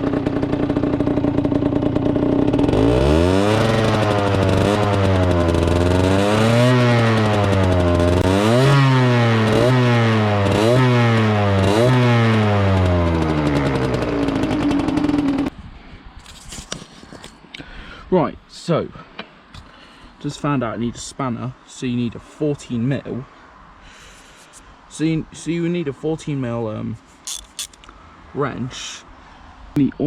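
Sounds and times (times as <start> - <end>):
two-stroke motorbike engine revving: 0.0 - 15.5, 27.3 - 27.8.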